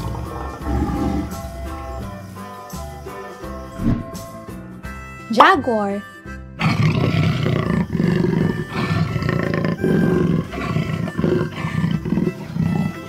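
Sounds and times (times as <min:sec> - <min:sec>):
jaguar roaring: 0:00.0 - 0:02.2, 0:06.6 - 0:13.0.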